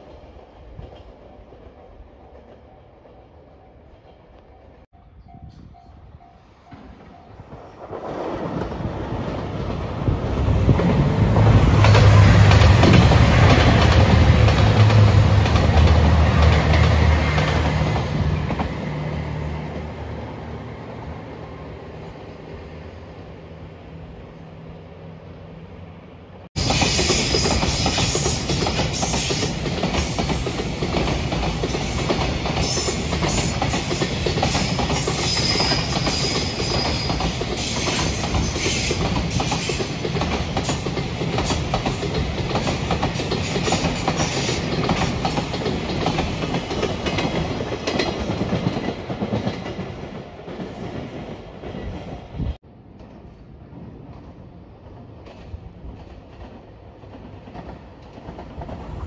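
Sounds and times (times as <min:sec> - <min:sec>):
train wheels clattering on rails: 0:06.6 - 0:19.0, 0:26.6 - 0:52.3, 0:52.9 - 0:59.0.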